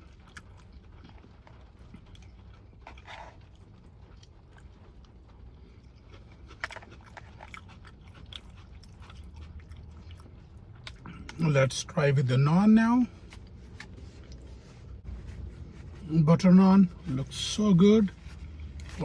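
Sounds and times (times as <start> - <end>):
person chewing food: 0.0 - 11.4
low steady hum: 0.0 - 19.0.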